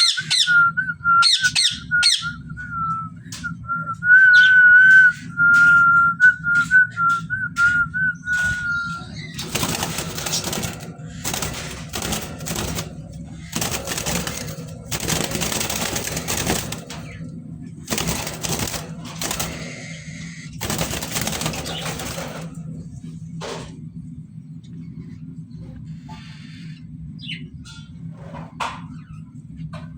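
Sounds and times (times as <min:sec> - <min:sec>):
steady low hum: 0:00.0 - 0:29.9
harsh noisy bursts: 0:09.3 - 0:23.0.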